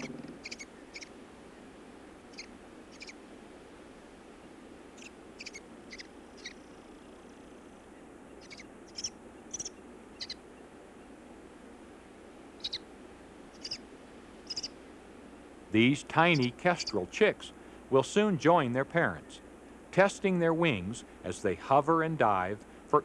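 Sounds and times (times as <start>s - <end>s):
bird chicks calling: 0.0s - 1.7s, 2.3s - 3.2s, 5.0s - 11.1s, 12.6s - 12.9s, 13.5s - 14.8s, 16.2s - 17.1s
faint steady hiss: 0.0s - 23.0s.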